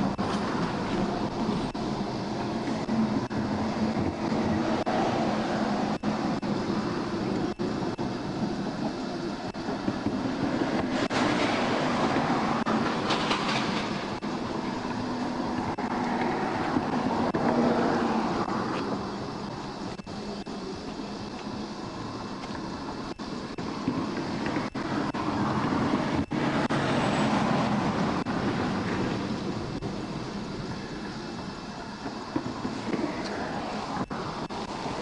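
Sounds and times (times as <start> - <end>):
heavy vehicle rumble: 0.0 - 35.0.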